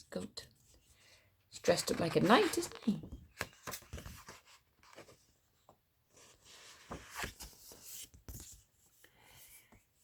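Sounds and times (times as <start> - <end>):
paper pages turning: 1.6 - 5.2, 6.1 - 8.6.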